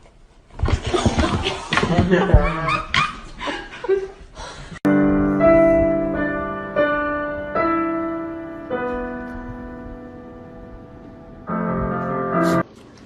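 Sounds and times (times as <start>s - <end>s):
slow piano music: 4.9s - 12.7s.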